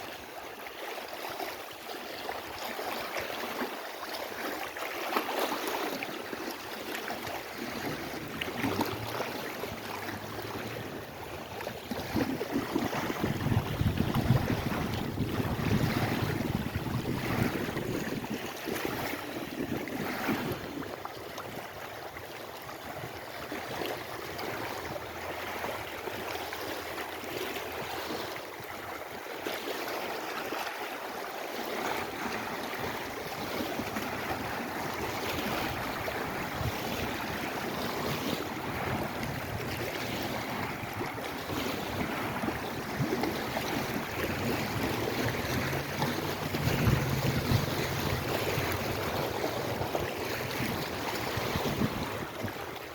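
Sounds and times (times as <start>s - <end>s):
waves washing on shore: 0.0s - 52.9s
wind gusting on microphone: 10.7s - 20.9s, 33.8s - 52.7s.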